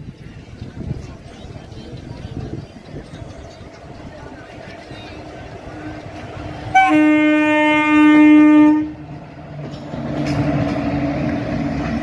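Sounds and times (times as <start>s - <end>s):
locomotive horn blast: 6.6s - 9.0s.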